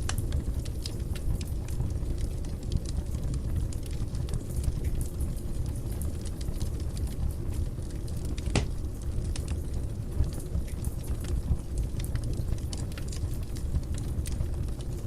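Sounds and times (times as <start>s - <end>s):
fire crackling: 0.0s - 15.0s
loud pop of fire: 8.5s - 8.9s.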